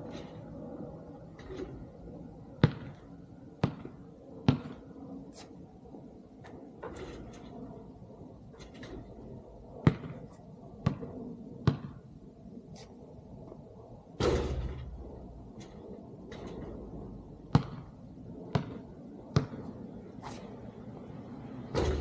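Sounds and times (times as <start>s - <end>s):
basketball bouncing: 2.6s - 4.9s, 9.8s - 12.1s, 14.2s - 15.0s, 17.4s - 19.8s, 21.7s - 22.0s.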